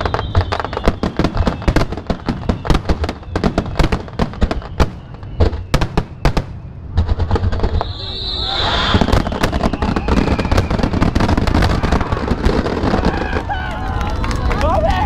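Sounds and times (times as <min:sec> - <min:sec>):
deep fireworks booms: 0:00.0 - 0:15.0
fireworks bangs and crackles: 0:00.0 - 0:15.0.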